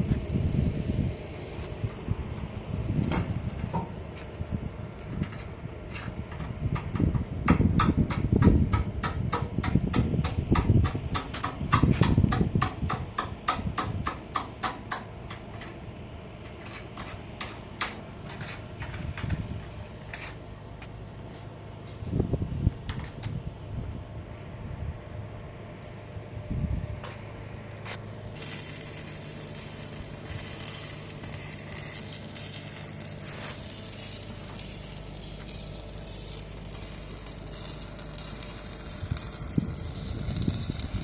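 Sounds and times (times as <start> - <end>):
low rumble: 28.4 - 41.0.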